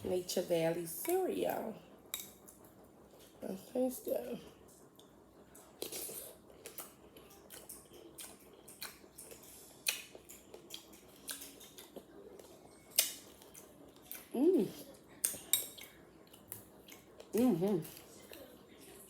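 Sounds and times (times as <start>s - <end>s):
wet chewing sounds: 4.8s - 19.0s.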